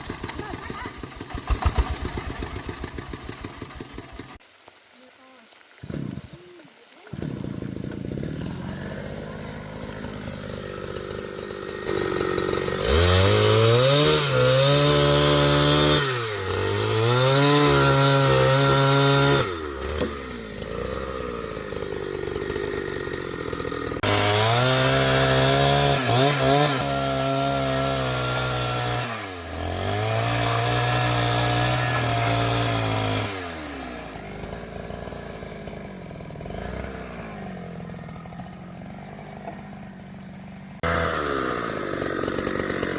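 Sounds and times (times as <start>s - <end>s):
chainsaw revving: 0.0s - 4.4s, 5.8s - 6.4s, 7.0s - 42.9s.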